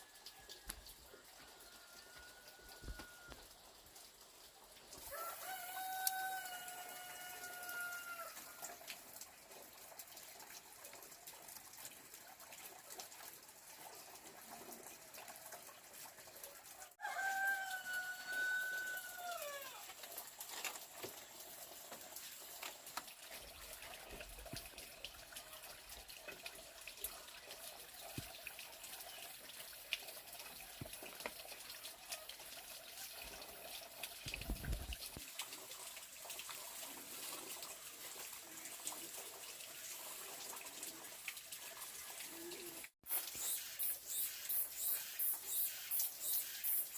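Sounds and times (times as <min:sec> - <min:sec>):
rooster crowing: 0:01.4 - 0:03.4, 0:05.0 - 0:08.6, 0:17.0 - 0:19.8.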